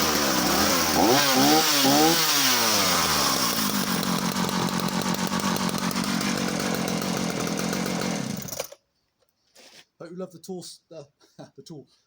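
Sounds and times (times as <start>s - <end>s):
chainsaw engine idling: 0.0s - 8.8s.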